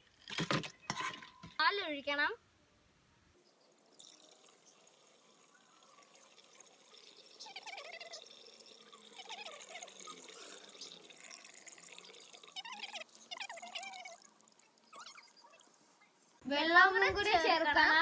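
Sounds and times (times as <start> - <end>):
liquid pouring into a jar: 0.0 - 1.6, 3.8 - 16.4
faint splashing and gurgling: 3.5 - 16.4.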